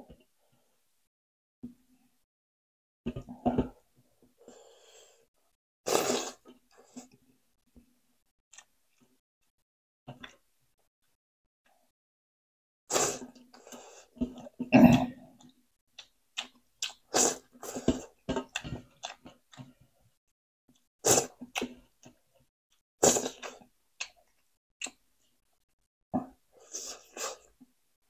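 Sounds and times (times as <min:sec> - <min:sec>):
person chewing and crunching food: 0:08.5 - 0:09.2, 0:15.2 - 0:22.2.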